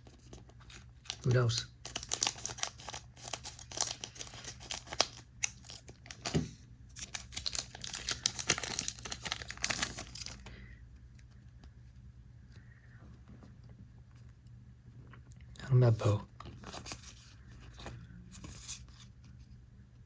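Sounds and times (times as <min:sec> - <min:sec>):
foil wrapper tearing and crinkling: 0:00.1 - 0:06.3, 0:06.9 - 0:10.5.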